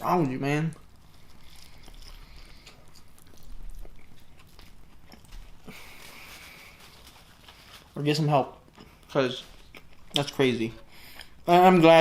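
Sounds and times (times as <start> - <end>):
wet chewing with small clicks: 0.5 - 5.8, 8.6 - 10.4.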